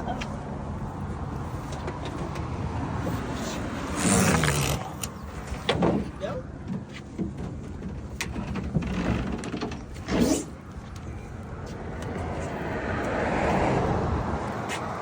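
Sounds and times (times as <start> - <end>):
car passing: 11.2 - 15.0.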